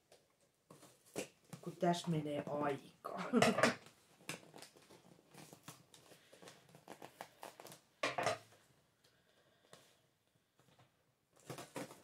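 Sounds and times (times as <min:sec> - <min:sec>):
tape and cardboard crinkling: 0:03.8 - 0:08.0, 0:10.6 - 0:12.0.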